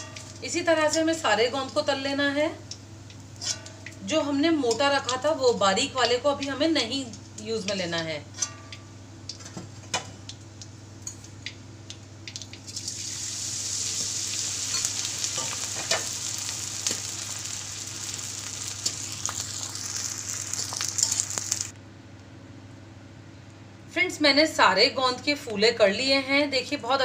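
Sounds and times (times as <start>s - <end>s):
food sizzling in hot oil: 12.3s - 21.8s.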